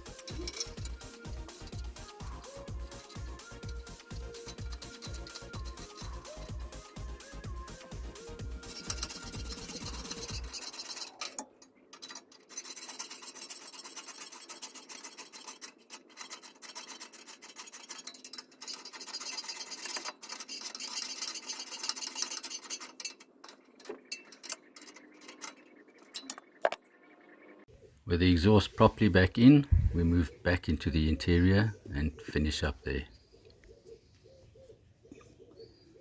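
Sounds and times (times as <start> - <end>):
ratchet wrench clicking: 0.0 - 23.2.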